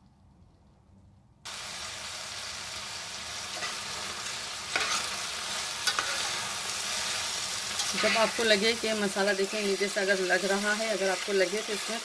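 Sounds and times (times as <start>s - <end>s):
vegetables sizzling in hot oil: 1.5s - 12.0s
spatula scraping a pan: 4.7s - 8.6s.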